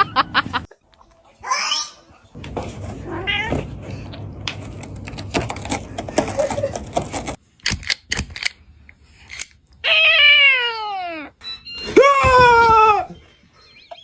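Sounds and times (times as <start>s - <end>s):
clicks and knocks: 2.4s - 7.4s.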